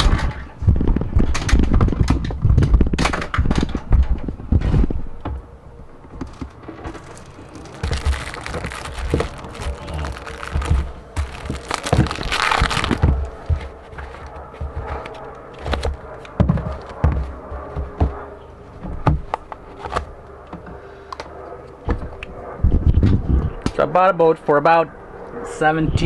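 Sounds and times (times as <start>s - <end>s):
crinkling: 6.2s - 17.0s.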